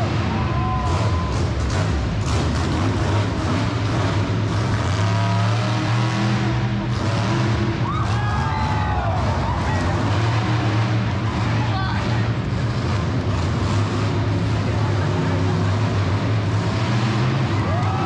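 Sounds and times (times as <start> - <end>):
arena noise: 0.0 - 18.0
monster truck engine droning: 0.0 - 18.0.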